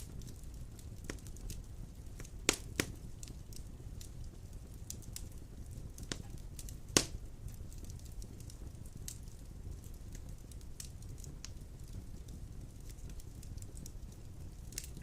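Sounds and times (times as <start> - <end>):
wood fire crackling: 0.0 - 15.0
loud pop of fire: 2.2 - 3.0, 6.0 - 7.8.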